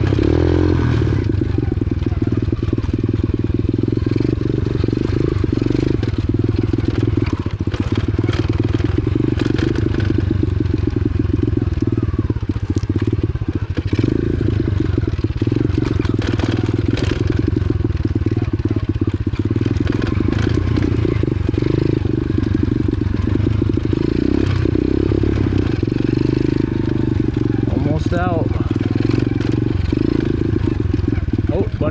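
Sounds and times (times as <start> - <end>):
motorcycle engine running: 0.0 - 31.9
rattles and crunches: 5.8 - 26.4, 27.2 - 31.4.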